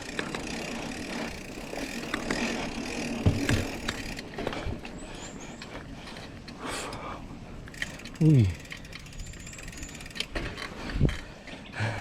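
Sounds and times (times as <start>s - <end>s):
bike clicks and rattles: 0.0s - 12.0s
bike tyres rolling on dirt: 0.0s - 12.0s
bike thump: 3.1s - 4.5s.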